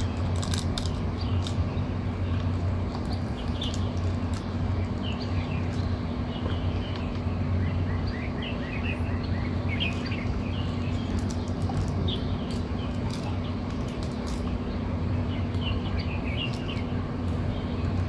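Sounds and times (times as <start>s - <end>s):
small birds chirping: 0.0s - 18.0s
steady low hum: 0.0s - 18.0s.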